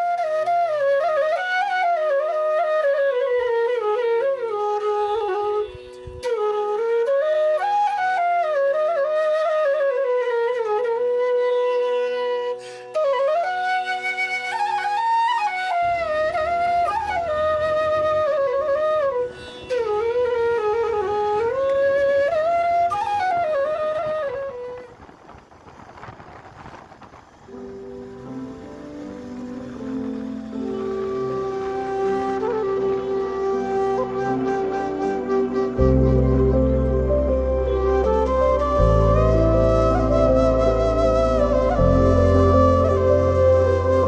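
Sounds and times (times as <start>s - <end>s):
flute melody: 0.0s - 26.1s, 27.5s - 44.0s
low rumbling noise: 35.2s - 44.0s.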